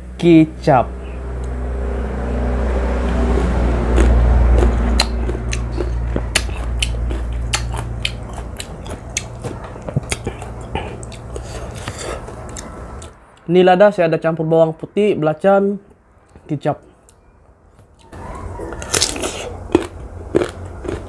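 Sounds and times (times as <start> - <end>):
low rumble: 0.9 - 13.7
crunchy fruit chewing: 3.0 - 13.2, 18.0 - 21.0.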